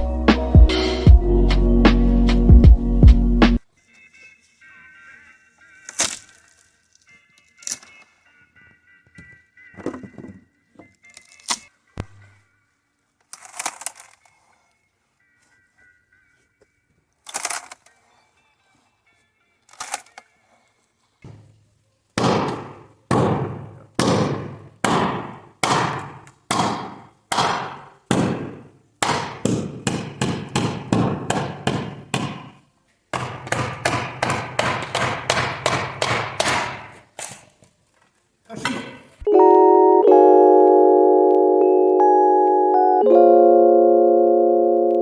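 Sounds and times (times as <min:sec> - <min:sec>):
music: 0:00.0 - 0:21.3, 0:39.2 - 0:45.0
hammering blows: 0:22.2 - 0:37.1.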